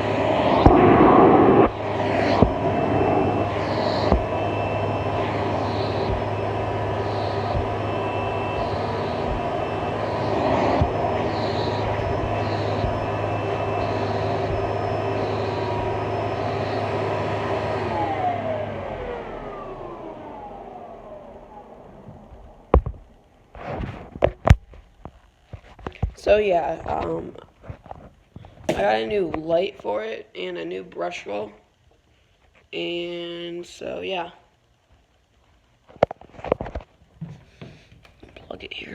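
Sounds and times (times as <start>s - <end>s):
vacuum cleaner running: 0.0s - 24.4s
motor winding down whine: 0.0s - 24.6s.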